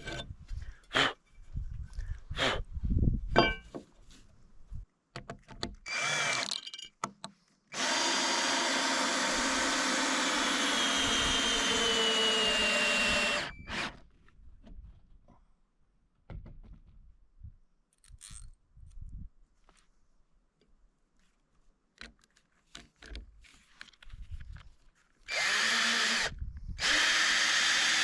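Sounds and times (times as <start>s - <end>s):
power drill whining: 5.9s - 6.6s, 7.7s - 14.0s, 25.3s - 28.0s.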